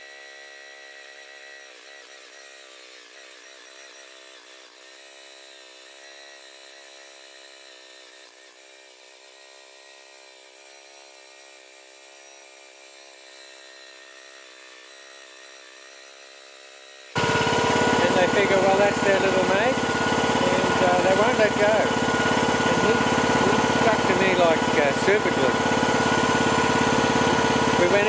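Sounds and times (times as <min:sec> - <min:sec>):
faint machine motor running: 0:10.7 - 0:28.0.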